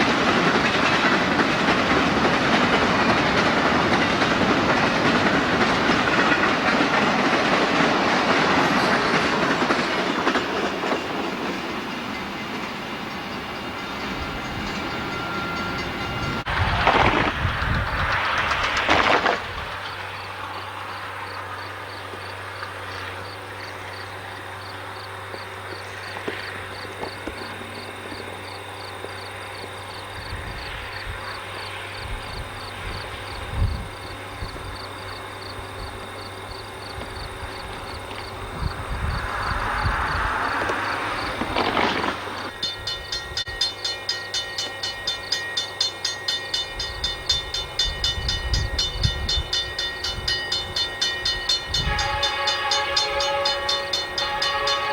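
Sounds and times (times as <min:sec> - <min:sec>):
freight train rumble: 0:00.0 - 0:54.9
insects chirping: 0:00.0 - 0:54.9
fast regular bell ringing: 0:42.6 - 0:54.9.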